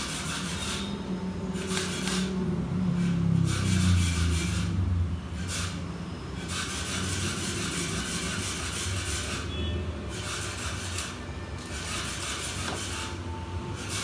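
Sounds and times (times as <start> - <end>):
scraping on laptop parts: 10.1 - 13.2.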